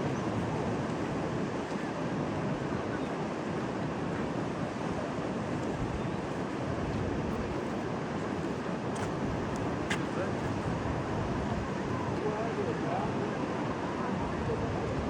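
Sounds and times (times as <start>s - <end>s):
rough sea surf: 0.0s - 15.0s
wind: 0.0s - 15.0s.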